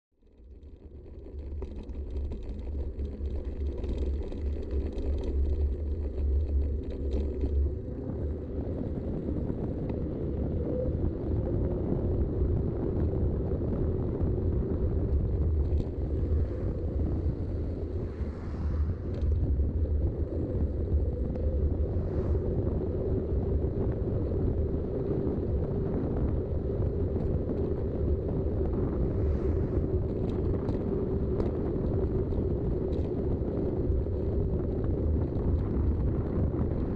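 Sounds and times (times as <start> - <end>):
wind: 0.1 - 36.9
faint rattles: 0.2 - 8.0
bike tyres rumbling: 0.2 - 36.9.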